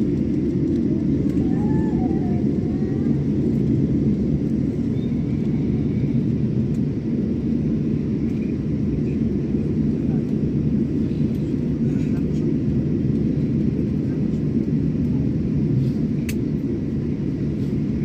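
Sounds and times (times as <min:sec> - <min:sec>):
airliner rumble during take-off: 0:00.0 - 0:18.0
faint voices: 0:01.0 - 0:03.6.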